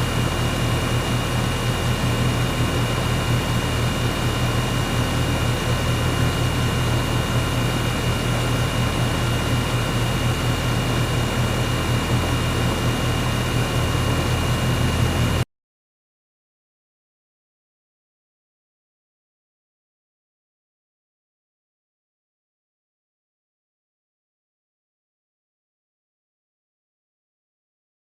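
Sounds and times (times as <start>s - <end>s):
air conditioner hum: 0.0s - 15.4s.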